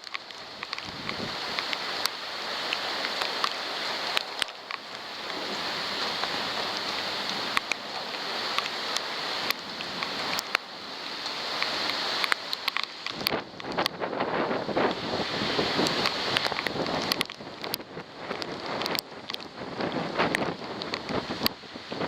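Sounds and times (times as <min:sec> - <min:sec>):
heavy rain pouring: 0:00.0 - 0:22.0
raindrops clicking on camera housing: 0:00.0 - 0:22.0.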